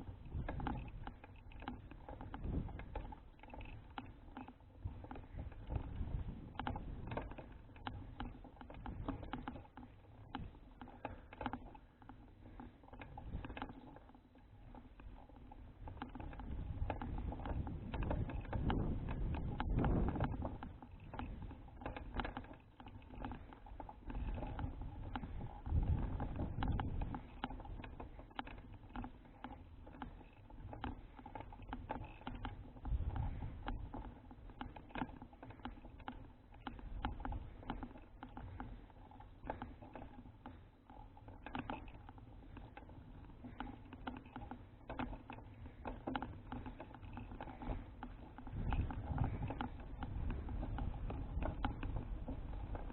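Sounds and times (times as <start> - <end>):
wind rumbling on microphone: 0.0 - 4.0, 4.8 - 9.6, 15.1 - 28.6, 32.3 - 35.0, 45.5 - 52.9
bicycle rattling and clicking: 0.0 - 52.9.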